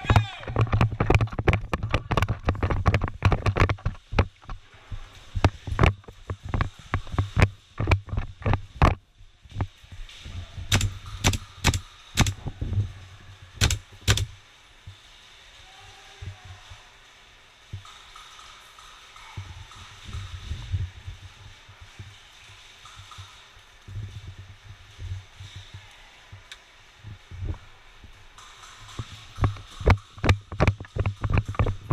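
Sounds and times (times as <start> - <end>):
airsoft guns firing: 10.7 - 12.4, 13.6 - 14.4.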